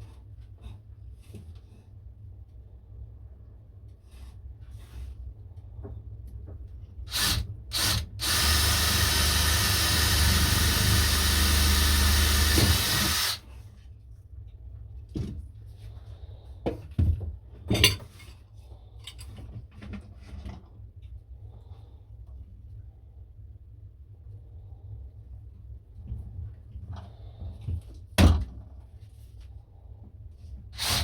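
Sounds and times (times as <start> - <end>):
electric power tool running: 7.1 - 13.4, 30.8 - 31.0.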